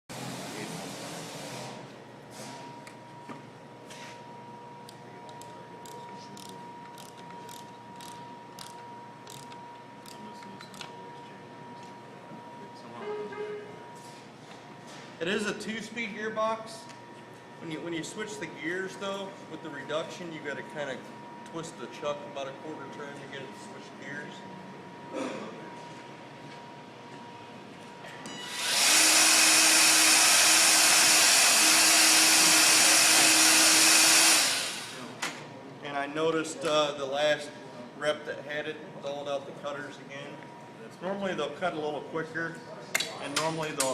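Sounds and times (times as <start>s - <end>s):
drill mechanism clicking: 28.5s - 34.9s.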